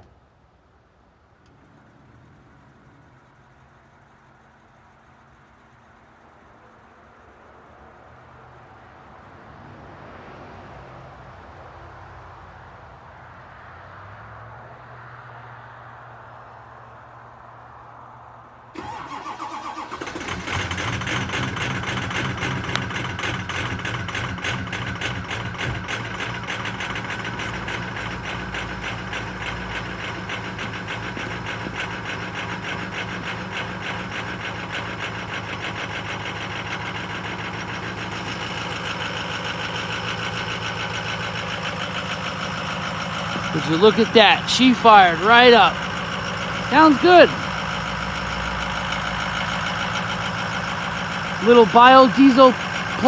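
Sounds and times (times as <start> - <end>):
diesel engine idling with clatter: 0.0 - 53.0
starter motor cranking: 18.8 - 53.0.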